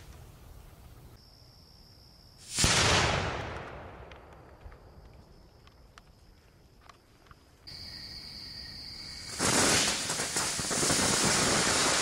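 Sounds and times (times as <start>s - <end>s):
firework bang echo: 2.4s - 4.3s
firework pops and crackles: 2.4s - 6.2s, 9.3s - 12.0s
steady hiss with high whine: 7.6s - 12.0s.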